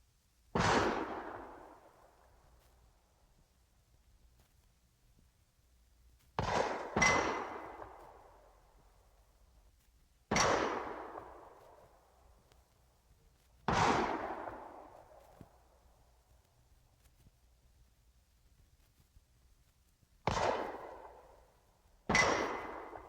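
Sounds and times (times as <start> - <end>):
sharp echoing bangs: 6.4 - 8.0, 13.7 - 14.9, 22.1 - 23.0.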